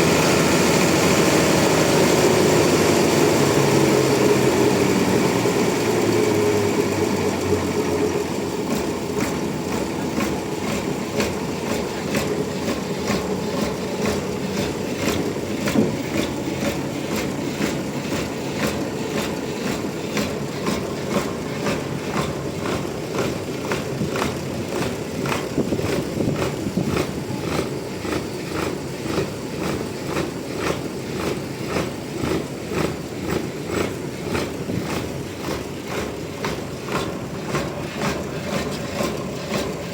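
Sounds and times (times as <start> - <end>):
sawmill engine pulsing: 0.0 - 39.9.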